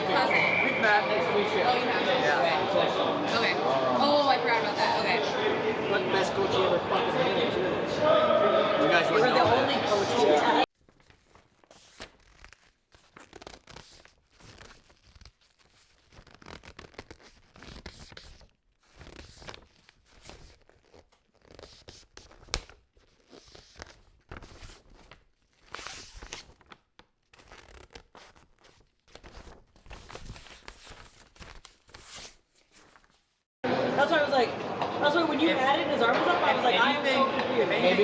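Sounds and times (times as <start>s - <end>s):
cloth rustling and crackling: 10.8s - 33.4s.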